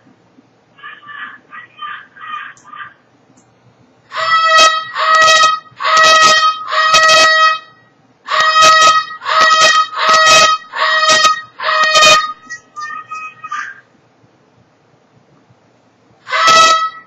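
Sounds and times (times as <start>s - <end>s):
bird honking calls: 4.1s - 13.8s.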